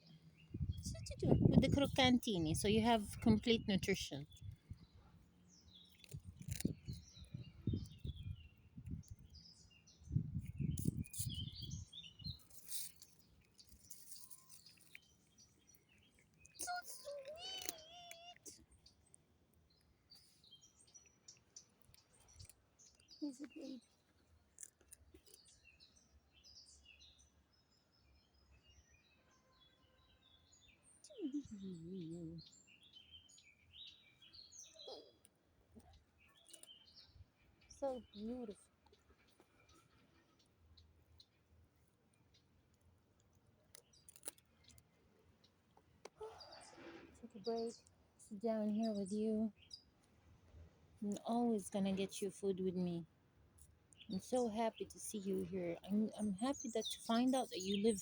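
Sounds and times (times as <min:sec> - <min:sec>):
small birds chirping: 0:00.0 - 0:58.0
cat chewing dry kibble: 0:43.7 - 0:44.8.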